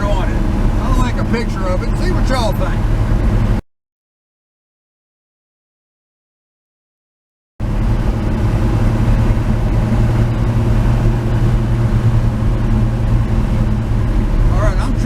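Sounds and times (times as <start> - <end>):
road noise: 0.0 - 3.6, 7.6 - 15.0
truck engine droning: 0.0 - 3.6, 7.6 - 15.0.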